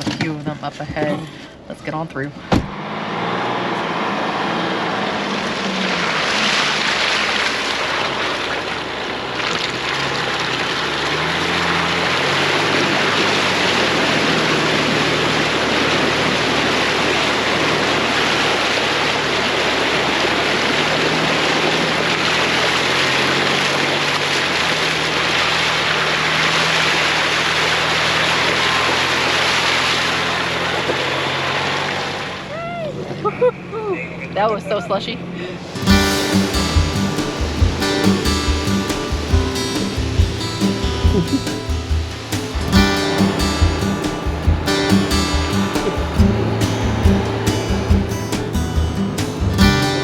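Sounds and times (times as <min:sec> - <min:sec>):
truck engine running: 0:02.7 - 0:50.0
water and slush churning: 0:03.4 - 0:32.5.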